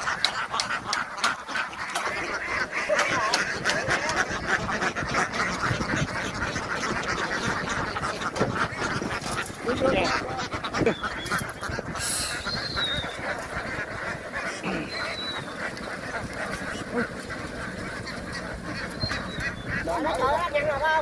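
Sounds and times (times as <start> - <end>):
ducks quacking and honking: 0.0 - 21.0.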